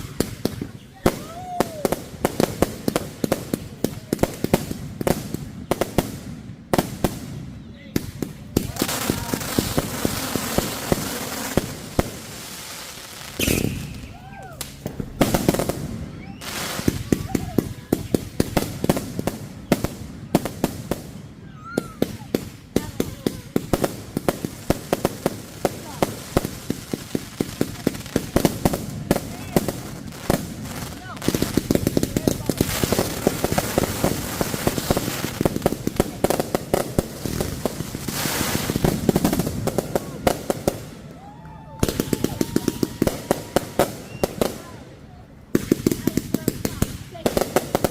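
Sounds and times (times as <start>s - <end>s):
crackling hiss: 0.0s - 47.9s
fireworks bangs: 0.0s - 47.9s.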